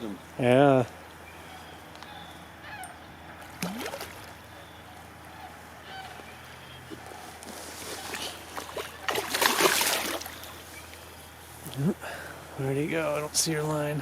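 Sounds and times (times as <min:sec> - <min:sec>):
faint crane calls: 0:00.9 - 0:09.0.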